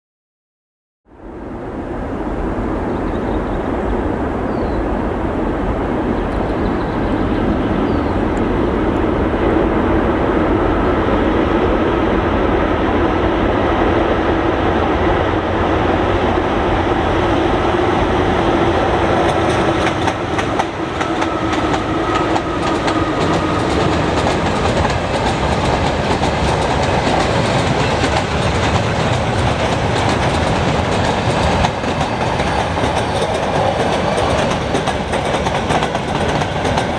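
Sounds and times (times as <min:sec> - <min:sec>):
faint locomotive whines: 0:01.1 - 0:36.9
freight train rumble: 0:01.1 - 0:36.9
wheels clacking over rail joints: 0:18.6 - 0:36.9.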